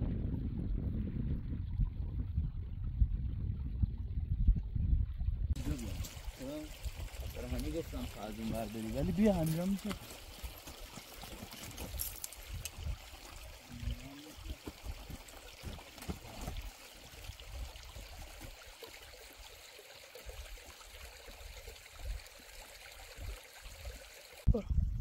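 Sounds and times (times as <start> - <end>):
water running and trickling: 5.5 - 24.5.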